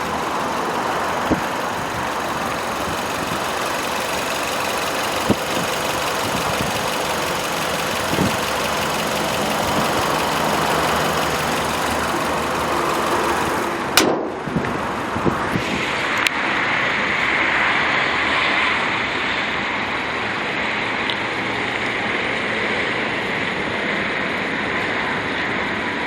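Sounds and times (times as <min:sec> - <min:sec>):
engine knocks: 0:00.0 - 0:15.6
car engine idling: 0:00.0 - 0:16.1.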